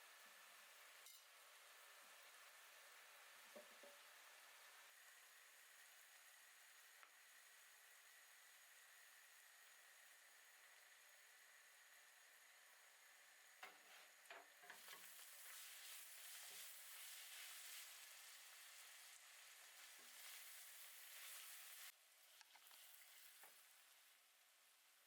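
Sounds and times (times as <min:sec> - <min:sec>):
food sizzling in a frying pan: 0:00.0 - 0:24.2.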